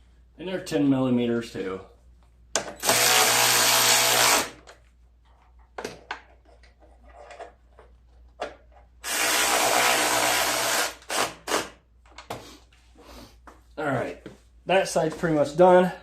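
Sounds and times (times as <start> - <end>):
cordless drill driving bolts: 2.7 - 4.7, 9.0 - 11.8.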